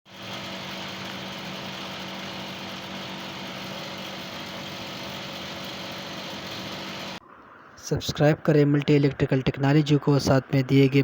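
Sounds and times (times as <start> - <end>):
air conditioner unit humming: 0.1 - 7.2.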